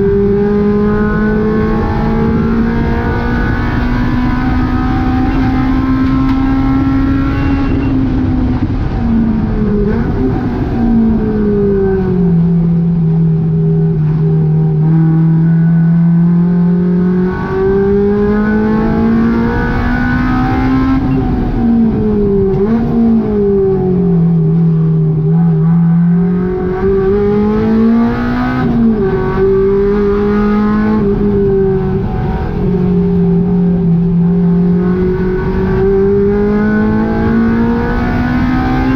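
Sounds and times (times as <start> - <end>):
car engine revving at high revs: 0.0 - 38.9.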